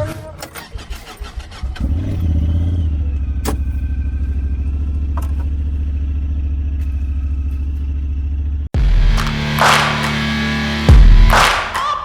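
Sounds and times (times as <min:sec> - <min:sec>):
engine idling: 0:00.6 - 0:08.9.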